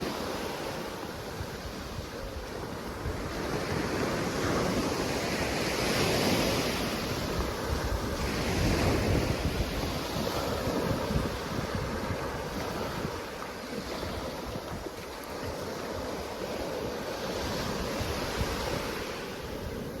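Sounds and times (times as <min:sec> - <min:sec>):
waves breaking on beach: 0:00.0 - 0:20.0
wind on microphone: 0:00.0 - 0:20.0.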